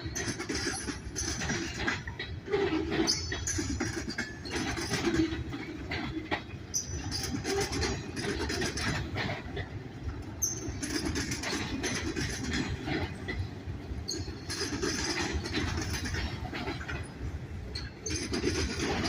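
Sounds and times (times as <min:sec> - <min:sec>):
freight train rolling past: 0:00.0 - 0:19.0
wheels clacking over rail joints: 0:00.0 - 0:19.0
high wheel squeals: 0:10.4 - 0:11.0.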